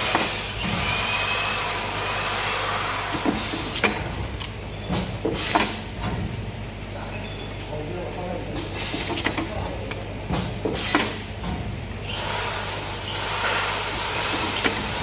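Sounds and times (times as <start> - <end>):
sealing machine running: 12.0 - 15.0.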